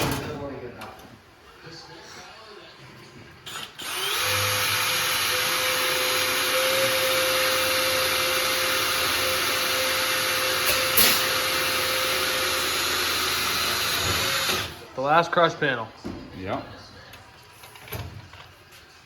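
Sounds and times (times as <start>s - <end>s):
motorised tool running: 3.5s - 14.8s.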